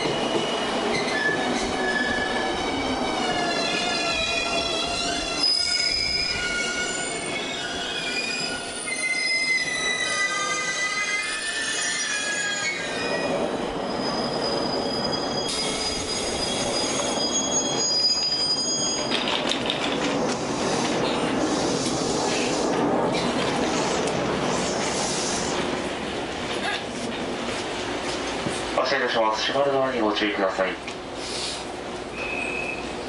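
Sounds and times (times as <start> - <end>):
train brakes squealing: 0.0 - 19.3, 31.3 - 33.0.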